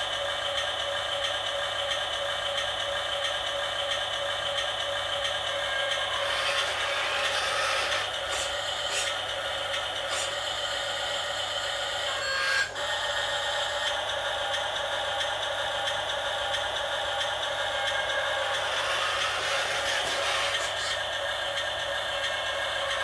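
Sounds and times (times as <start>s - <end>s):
toy electric motors whirring: 5.5s - 10.9s, 17.2s - 21.5s
short clicks and scrapes: 5.8s - 10.5s, 18.8s - 21.0s.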